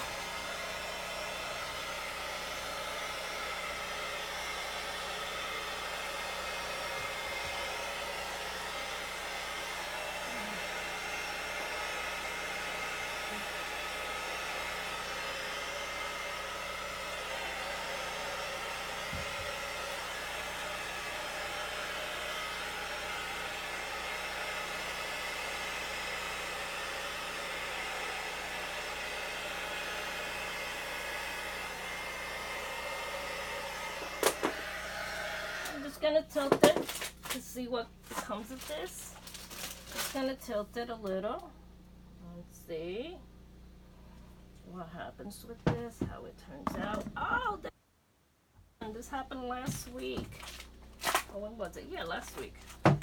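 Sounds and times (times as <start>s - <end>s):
heat gun blowing hot air: 0.0s - 40.3s, 49.6s - 53.0s.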